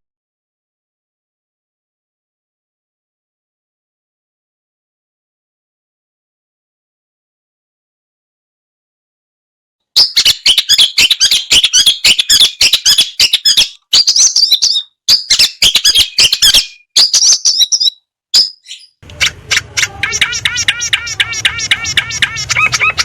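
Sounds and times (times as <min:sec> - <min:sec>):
shrike singing harsh chatter: 0:19.0 - 0:23.0.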